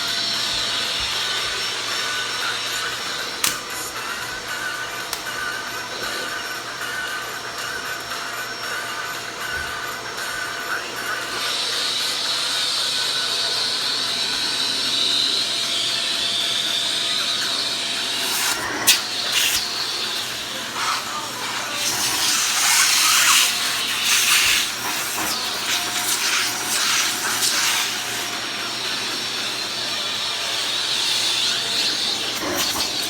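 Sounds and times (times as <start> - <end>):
vacuum cleaner running: 0.0 - 33.0
vacuum cleaner click: 2.6 - 3.8, 18.2 - 33.0.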